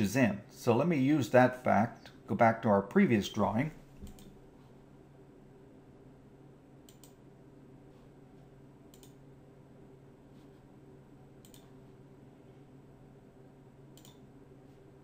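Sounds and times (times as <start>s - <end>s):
low steady hum: 0.0s - 15.0s
computer mouse clicks: 4.0s - 4.4s, 6.9s - 7.2s, 8.9s - 9.2s, 11.4s - 11.7s, 13.9s - 14.3s.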